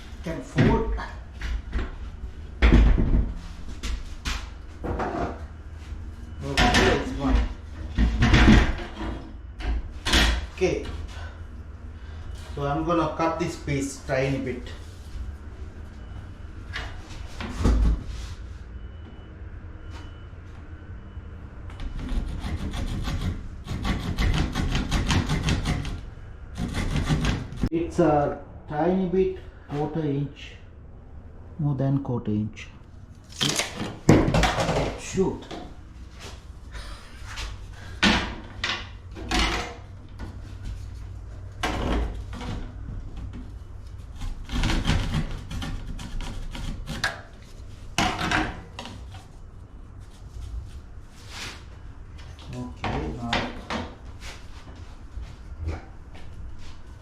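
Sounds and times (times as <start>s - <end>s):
hand saw cutting wood: 26.6s - 27.4s.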